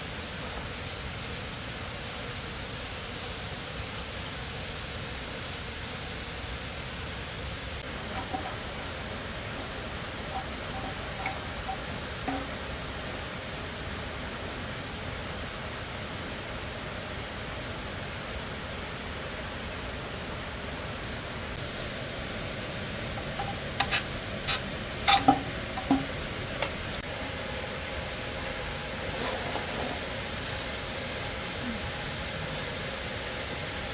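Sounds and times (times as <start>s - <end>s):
steady hiss: 0.0s - 33.9s
sharp clicks and light knocks: 23.1s - 27.0s.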